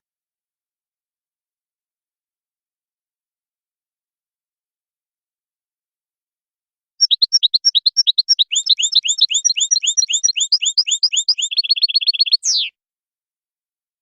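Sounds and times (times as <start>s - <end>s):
goldfinch singing high trill: 7.0s - 12.7s.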